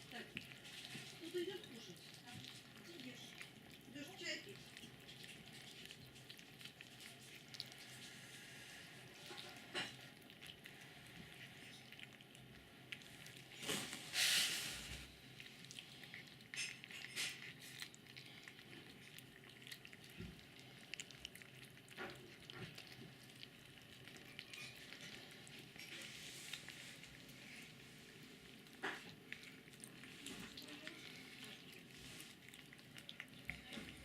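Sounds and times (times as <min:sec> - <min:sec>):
cat chewing: 0:00.0 - 0:34.0
rustling: 0:04.5 - 0:34.0.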